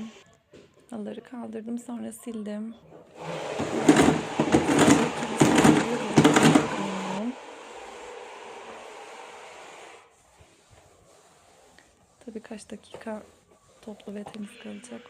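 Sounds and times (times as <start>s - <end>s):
vacuum cleaner running: 3.2s - 10.1s.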